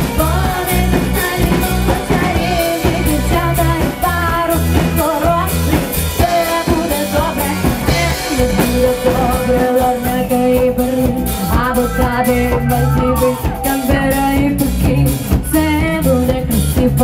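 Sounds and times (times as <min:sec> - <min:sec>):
live rock band: 0:00.0 - 0:17.0
person singing: 0:08.6 - 0:14.8.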